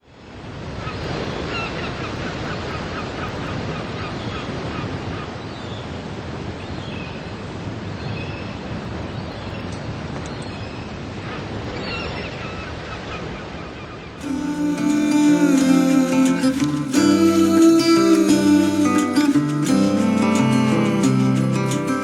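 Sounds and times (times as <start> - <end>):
sea surf washing: 14.2 - 22.0.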